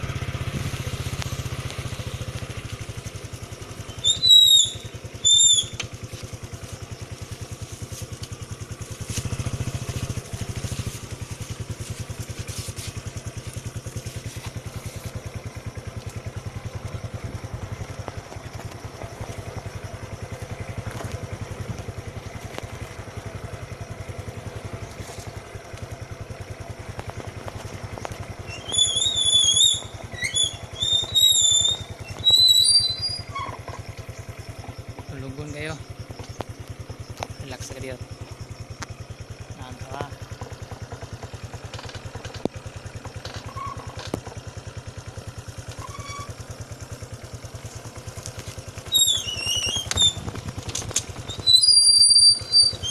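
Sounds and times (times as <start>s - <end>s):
motorcycle engine running: 0.0s - 52.9s
short high-pitched chirps: 3.9s - 5.8s, 28.5s - 33.4s.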